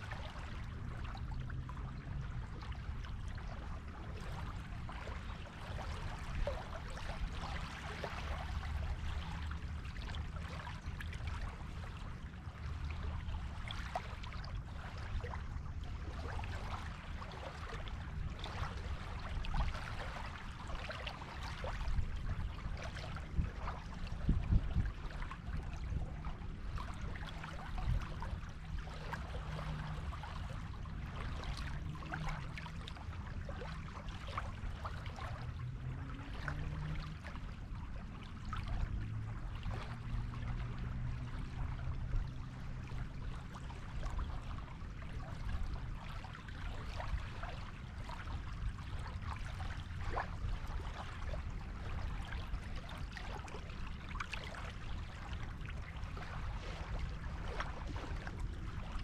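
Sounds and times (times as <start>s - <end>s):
waves washing on a beach: 0.0s - 59.0s.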